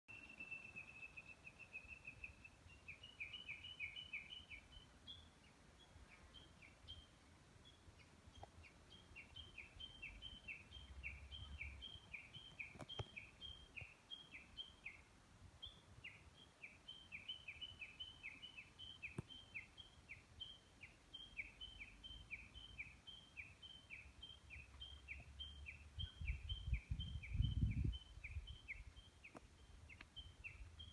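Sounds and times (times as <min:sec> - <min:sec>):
wind rumble on microphone: 0:25.9 - 0:28.9.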